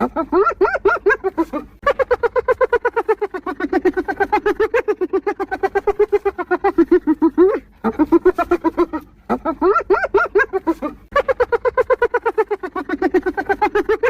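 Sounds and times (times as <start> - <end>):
hyena giggling yelps: 0.0 - 14.0.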